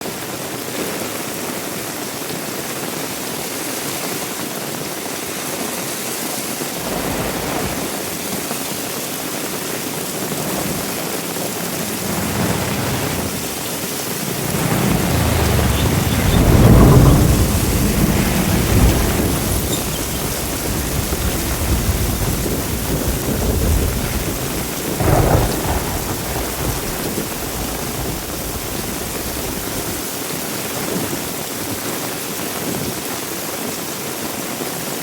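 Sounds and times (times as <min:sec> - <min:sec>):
heavy rain falling: 0:01.2 - 0:31.8
deep low rumble: 0:10.5 - 0:29.9.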